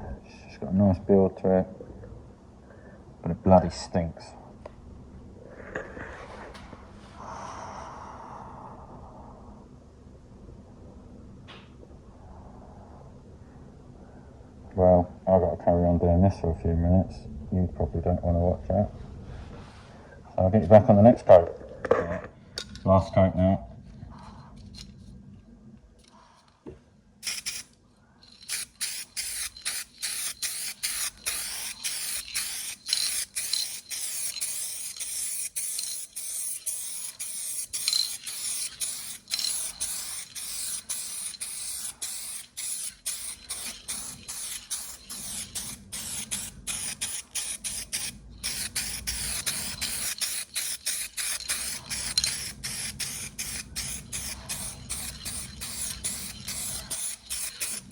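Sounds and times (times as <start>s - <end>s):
spray paint hissing: 27.2s - 57.9s.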